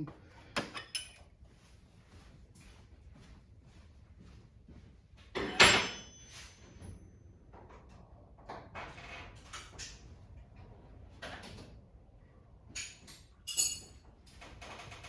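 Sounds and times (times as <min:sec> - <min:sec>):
tools knocking and rattling: 0:00.6 - 0:01.3, 0:12.8 - 0:15.0
sharp metallic clinks: 0:13.5 - 0:14.0.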